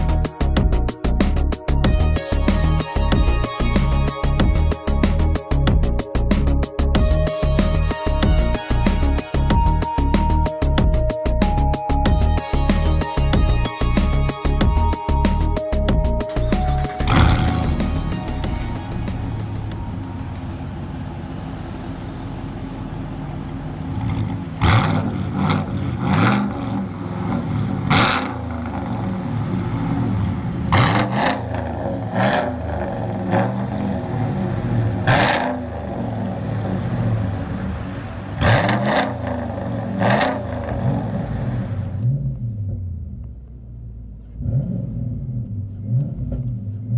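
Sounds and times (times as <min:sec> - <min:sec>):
truck engine idling and revving: 0:00.0 - 0:46.9.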